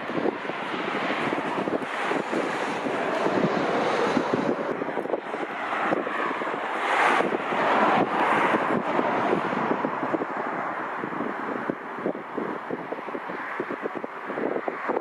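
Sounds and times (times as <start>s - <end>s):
jet engines rumbling: 0.0s - 15.0s
wind gusting on microphone: 0.0s - 15.0s.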